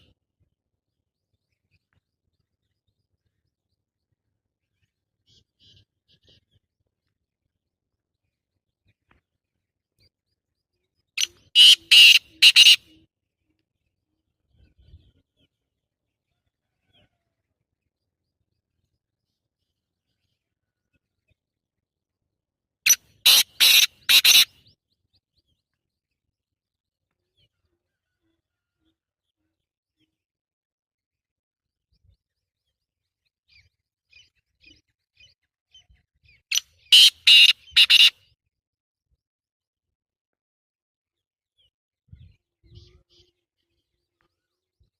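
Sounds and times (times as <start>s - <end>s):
bird chirps: 0.9s - 6.8s, 8.1s - 15.7s, 22.9s - 26.3s, 31.9s - 38.4s
bird harsh grating call: 11.5s - 12.9s, 22.9s - 24.6s, 36.8s - 38.2s.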